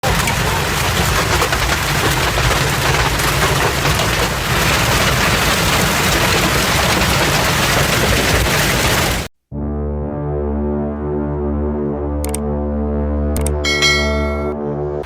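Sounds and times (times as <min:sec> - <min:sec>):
hail and rain pelting down: 0:00.0 - 0:09.3.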